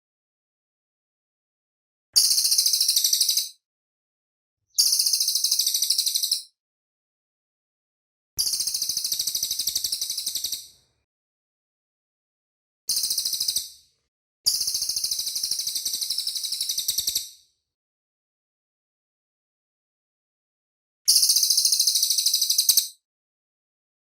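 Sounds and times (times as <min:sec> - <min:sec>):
bird singing a fast high trill: 0:02.2 - 0:03.6, 0:04.8 - 0:06.6, 0:14.5 - 0:17.4, 0:21.2 - 0:23.0.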